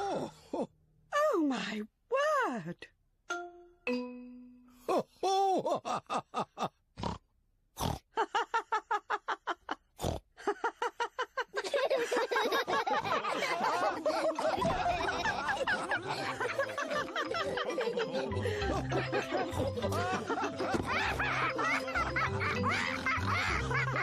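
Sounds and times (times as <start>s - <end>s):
group laughing: 4.9s - 6.8s, 8.2s - 24.0s
cartoon pigs snorting and laughing: 7.8s - 8.2s, 9.8s - 10.6s, 11.6s - 24.0s.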